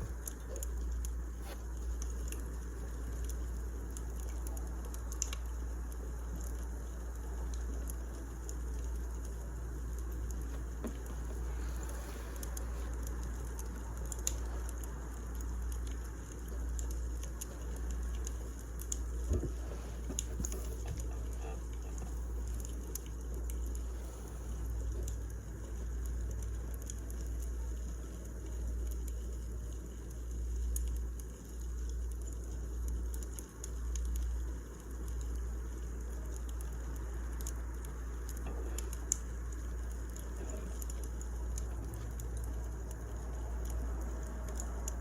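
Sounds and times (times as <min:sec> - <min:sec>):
steady low rumble: 0:00.0 - 0:29.8
wood fire crackling: 0:00.0 - 0:45.0.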